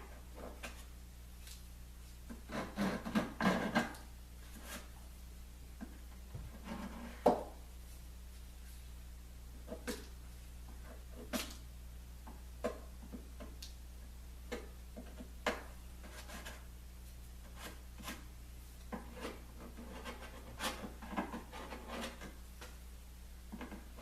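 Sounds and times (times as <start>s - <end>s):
scraping on wood edge: 2.3s - 4.9s, 6.4s - 7.5s, 14.5s - 16.7s, 18.9s - 22.4s.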